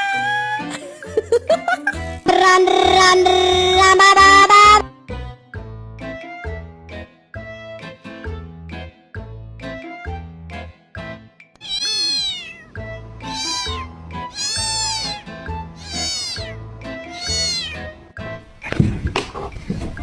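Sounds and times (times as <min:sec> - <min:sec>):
background music: 0:00.0 - 0:20.0
cat meowing: 0:11.6 - 0:15.2, 0:15.8 - 0:17.9.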